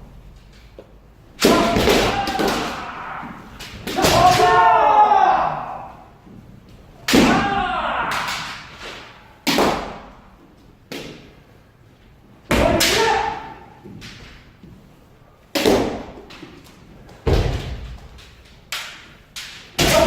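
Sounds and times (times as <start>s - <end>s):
bamboo sword strikes: 1.4s - 3.0s, 3.6s - 4.7s, 7.0s - 10.1s, 15.6s - 16.2s, 18.7s - 20.0s
person shouting: 1.4s - 6.1s, 7.1s - 8.6s, 12.5s - 13.7s, 19.8s - 20.0s.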